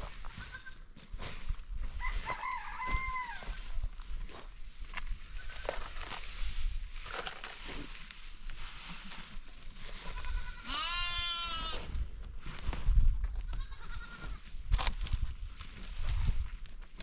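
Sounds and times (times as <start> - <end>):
goat bleating: 0.4 - 0.8, 10.0 - 11.8, 13.5 - 14.4.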